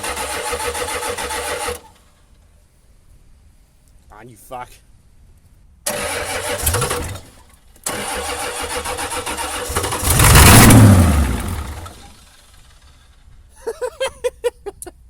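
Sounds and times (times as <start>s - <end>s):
diesel engine cranking: 0.0s - 2.2s, 5.9s - 13.5s.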